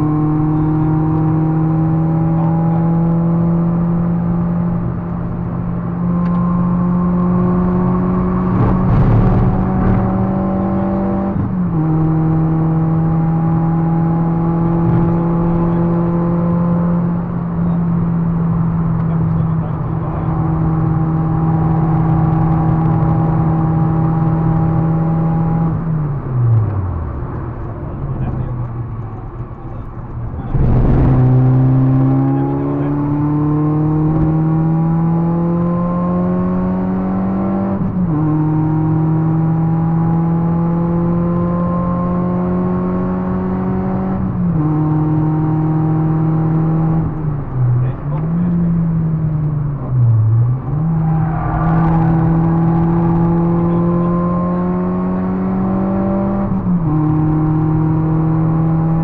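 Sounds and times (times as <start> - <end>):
car engine pulling hard at high revs: 0.0 - 59.0.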